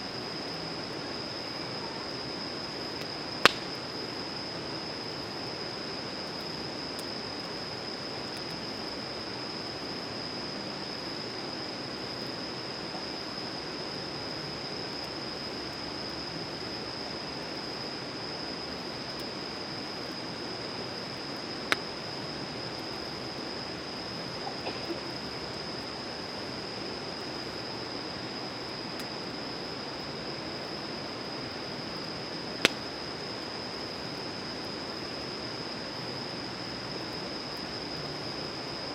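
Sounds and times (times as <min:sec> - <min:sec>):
campfire hiss: 0:00.0 - 0:38.9
campfire crackling pops: 0:03.0 - 0:04.1, 0:21.6 - 0:22.0, 0:32.5 - 0:33.1.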